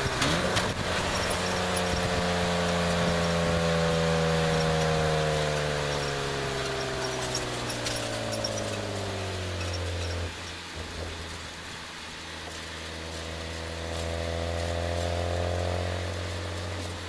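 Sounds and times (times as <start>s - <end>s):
car engine running: 0.0s - 17.0s
road noise: 0.0s - 17.0s.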